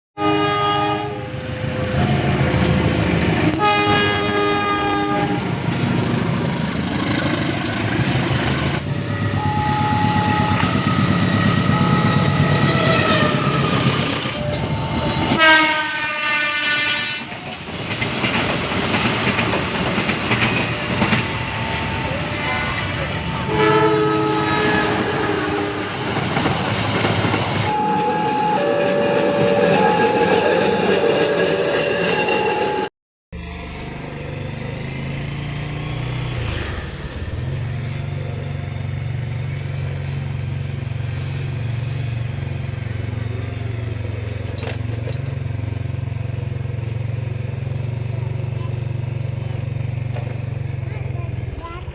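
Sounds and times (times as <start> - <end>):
train horn blasts: 0.2 - 2.4, 3.4 - 5.6, 9.1 - 17.3, 22.2 - 26.3, 27.6 - 32.9
train wheels rumbling on rails: 0.4 - 51.9.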